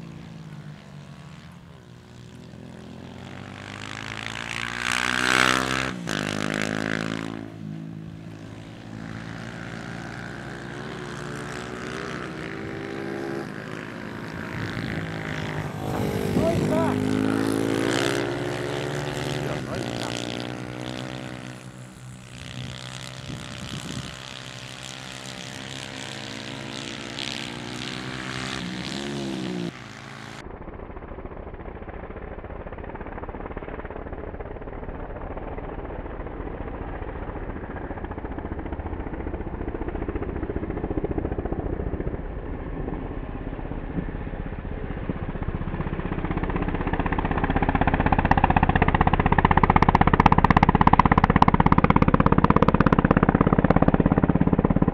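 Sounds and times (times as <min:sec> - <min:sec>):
motorbike engine revving: 0:00.0 - 0:54.9
muffled engine-like noise: 0:19.1 - 0:24.4, 0:28.6 - 0:54.9.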